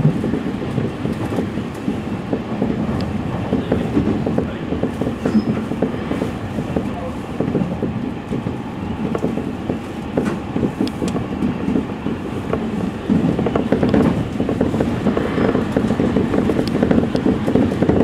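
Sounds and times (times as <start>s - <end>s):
train wheels rumbling on rail: 0.0s - 18.0s
wheels clicking over rail joints: 0.0s - 18.0s.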